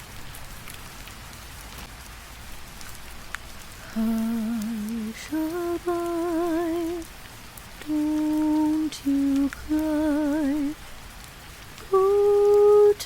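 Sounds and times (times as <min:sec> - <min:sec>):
steady rain patter: 0:00.0 - 0:13.0
woman singing a lullaby: 0:03.8 - 0:07.1, 0:07.8 - 0:10.8, 0:11.8 - 0:13.0.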